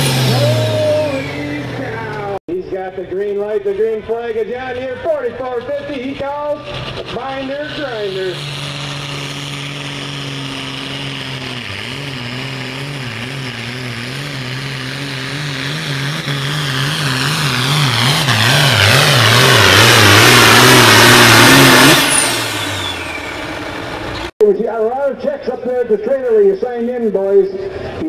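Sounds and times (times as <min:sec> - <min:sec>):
tractor diesel engine under load: 0:00.0 - 0:25.1.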